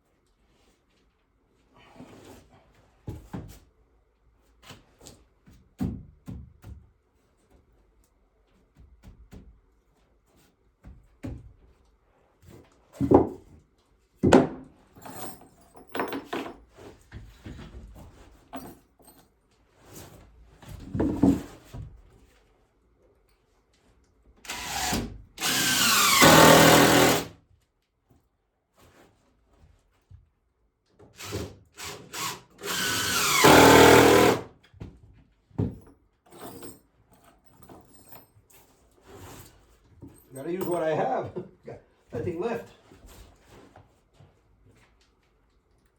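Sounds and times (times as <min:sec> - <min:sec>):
wood and tools knocking: 0:14.2 - 0:15.2, 0:15.8 - 0:16.6, 0:32.1 - 0:34.4
power drill running: 0:24.5 - 0:27.3, 0:31.2 - 0:34.5.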